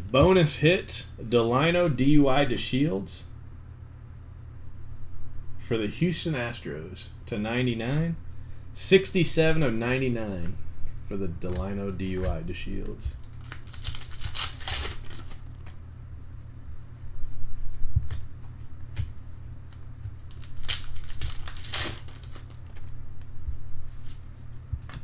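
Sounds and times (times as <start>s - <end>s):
low hum: 0.0s - 25.0s
wrapper tearing and crinkling: 13.2s - 15.8s, 19.7s - 23.3s.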